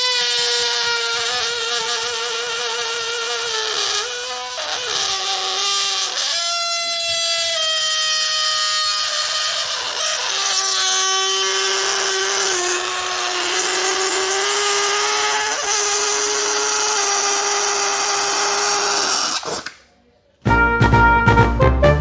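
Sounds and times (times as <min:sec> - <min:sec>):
balloon squealing as air escapes: 0:00.0 - 0:19.9
music with a beat: 0:20.5 - 0:22.0.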